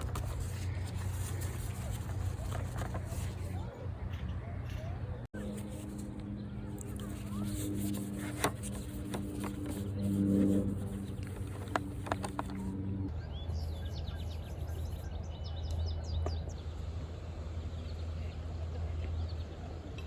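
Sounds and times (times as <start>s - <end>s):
low steady hum: 0.0s - 20.0s
small birds chirping: 4.7s - 18.4s
low drone with several pitches: 5.3s - 14.4s.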